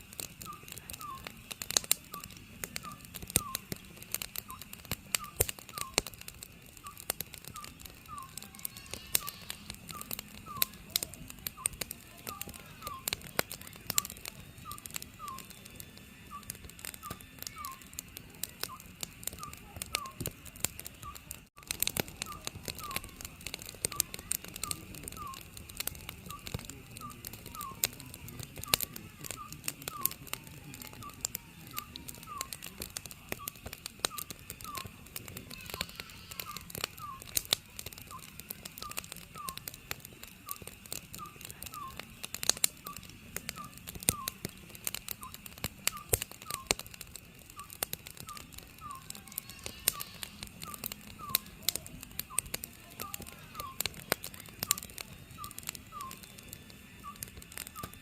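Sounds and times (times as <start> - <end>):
wood fire crackling and popping: 0.0 - 58.0
owl hooting: 7.5 - 10.8, 34.2 - 37.4, 47.6 - 51.5.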